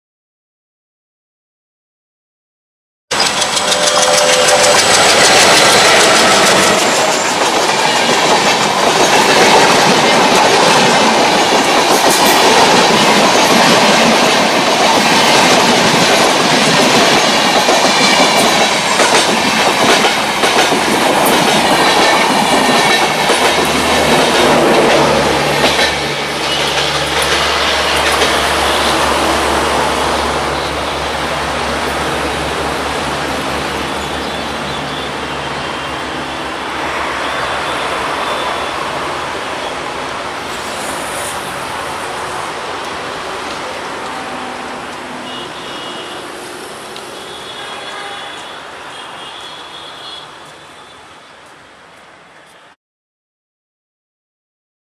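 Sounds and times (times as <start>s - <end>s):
train wheels rumbling and clattering: 3.1s - 45.2s.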